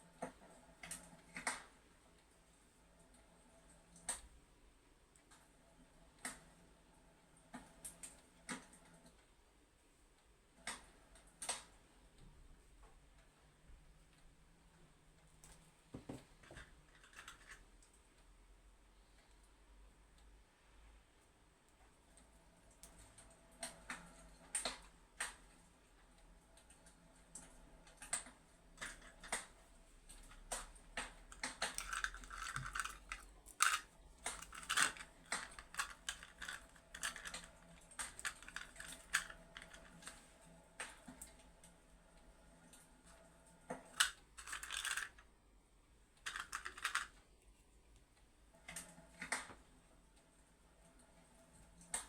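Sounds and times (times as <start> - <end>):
close-up clicks and crackles: 0.1 - 2.3, 3.9 - 4.4, 10.2 - 12.3, 16.4 - 18.3, 21.7 - 45.3, 46.2 - 50.3, 50.9 - 52.0.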